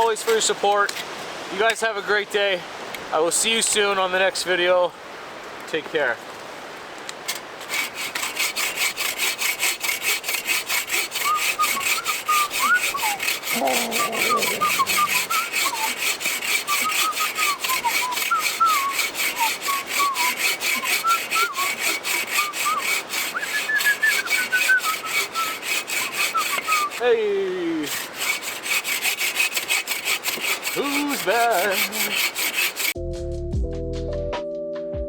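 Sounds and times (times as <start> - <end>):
hand saw cutting log: 7.3 - 33.0.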